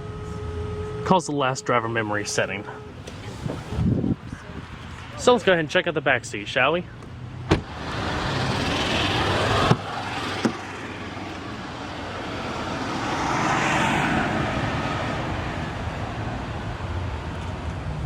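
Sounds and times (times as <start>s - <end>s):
vehicle passing: 7.1s - 18.0s
car door shutting: 7.4s - 7.8s.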